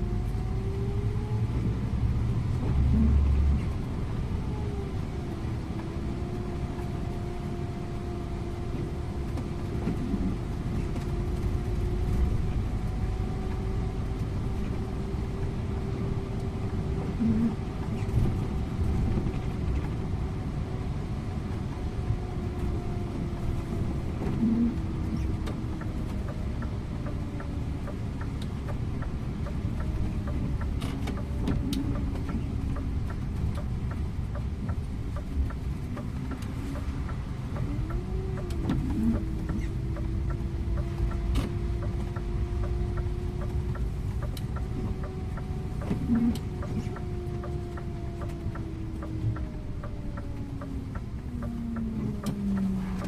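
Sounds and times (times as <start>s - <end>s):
bus engine and road rumble: 0.0s - 53.0s.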